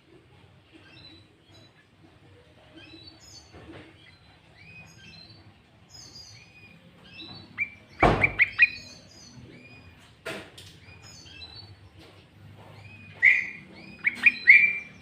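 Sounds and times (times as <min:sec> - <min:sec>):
bird chirps and whistles: 0:07.6 - 0:09.0, 0:13.0 - 0:15.0
thump: 0:08.0 - 0:08.6.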